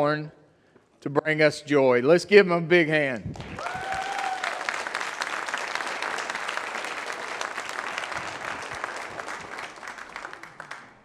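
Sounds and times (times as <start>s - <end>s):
congregation applauding: 3.4s - 11.0s.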